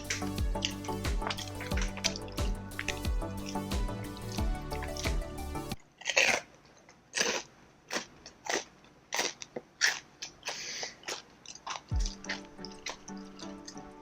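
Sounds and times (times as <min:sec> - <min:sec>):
crunching pork skin: 0:00.0 - 0:05.2, 0:05.8 - 0:14.0
background music: 0:00.0 - 0:05.8, 0:11.9 - 0:14.0.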